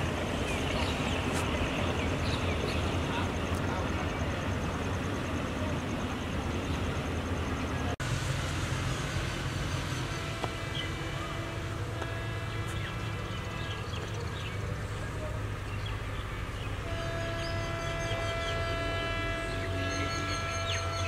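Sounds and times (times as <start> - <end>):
diesel train rumbling: 0.0 - 21.0.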